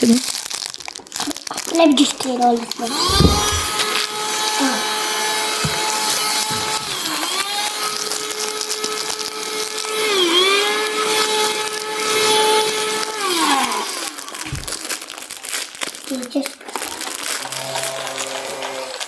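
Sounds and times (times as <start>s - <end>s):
vacuum cleaner motor whine: 2.9s - 14.7s, 17.4s - 19.0s.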